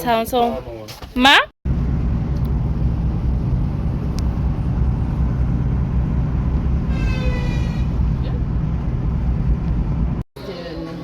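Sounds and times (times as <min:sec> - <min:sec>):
car road and engine rumble: 0:01.7 - 0:10.3.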